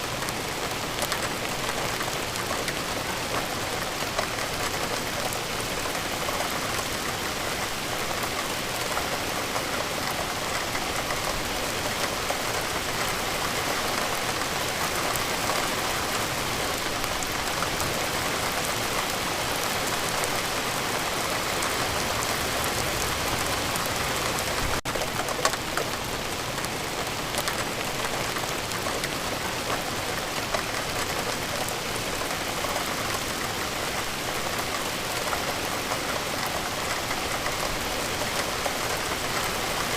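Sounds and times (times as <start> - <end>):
steady rain hissing: 0.0 - 39.9.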